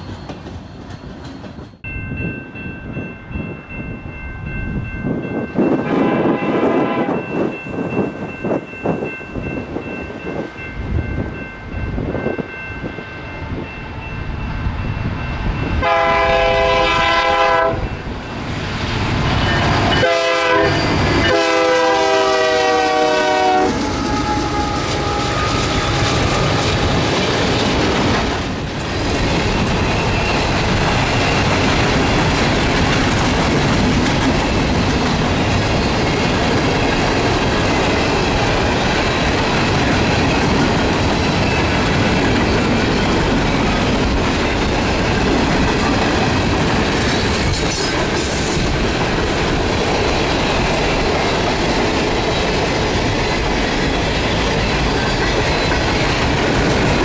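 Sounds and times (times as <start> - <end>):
locomotive horn chord: 5.9 - 7.2, 15.8 - 17.9, 20.0 - 26.2.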